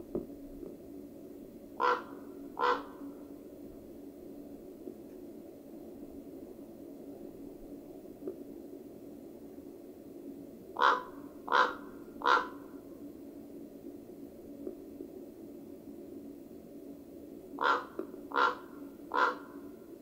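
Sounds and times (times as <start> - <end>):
faint low hum: 0.0 - 20.0
raven croaking: 1.8 - 3.3, 10.8 - 12.8, 17.6 - 19.8.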